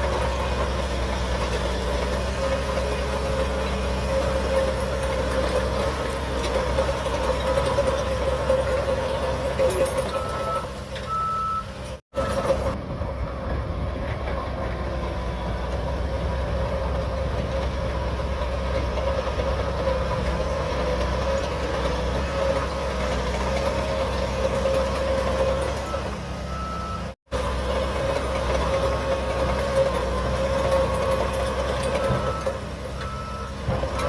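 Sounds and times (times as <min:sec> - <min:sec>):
bulldozer diesel engine running: 0:00.0 - 0:34.0
reversing alarm beeping: 0:09.6 - 0:13.5, 0:25.2 - 0:27.2, 0:30.6 - 0:33.7.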